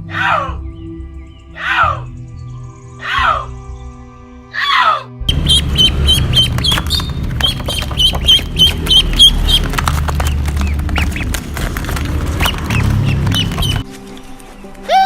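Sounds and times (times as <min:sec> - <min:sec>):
birds calling high: 0:00.0 - 0:15.0
low rumble: 0:05.3 - 0:13.8
crackling noise: 0:05.3 - 0:14.9.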